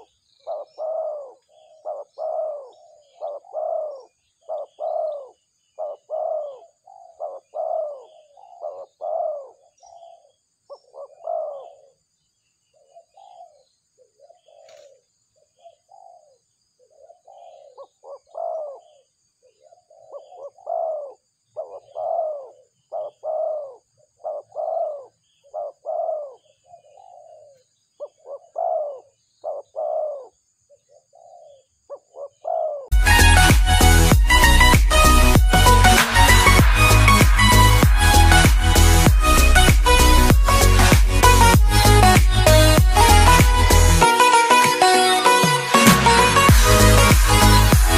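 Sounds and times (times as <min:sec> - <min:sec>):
birds hooting: 0:00.0 - 0:12.0, 0:12.6 - 0:47.9
high insect buzz: 0:32.9 - 0:47.9.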